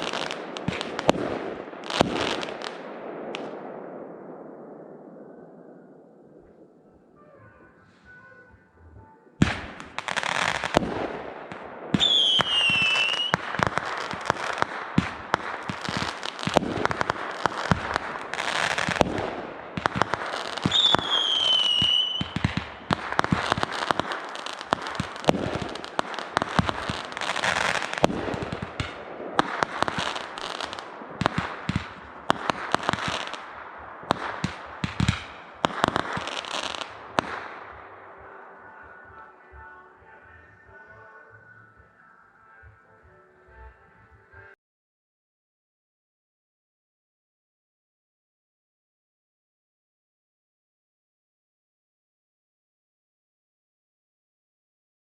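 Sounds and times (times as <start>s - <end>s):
fireworks banging and crackling: 0.0s - 4.8s, 9.4s - 41.0s
descending firework whistles: 11.9s - 14.3s, 20.2s - 28.6s.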